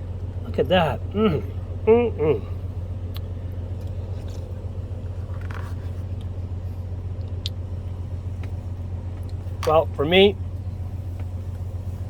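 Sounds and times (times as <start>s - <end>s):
steady low hum: 0.0s - 12.0s
soft rustle: 4.0s - 6.9s.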